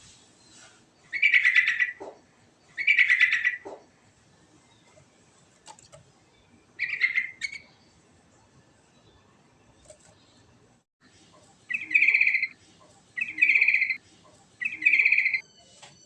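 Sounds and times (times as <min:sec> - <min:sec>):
bird singing chattering notes: 0:01.0 - 0:03.8, 0:06.2 - 0:07.8, 0:11.7 - 0:12.5, 0:13.2 - 0:14.0, 0:14.6 - 0:15.4.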